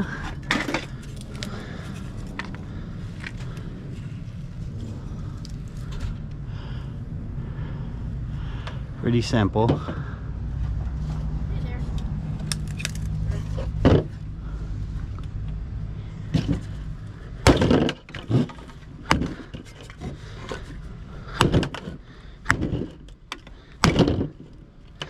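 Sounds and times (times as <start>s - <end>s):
low engine hum: 0.0s - 25.0s
scrap metal clanks and thuds: 0.1s - 1.5s, 13.3s - 14.2s, 16.2s - 16.8s, 17.4s - 25.0s.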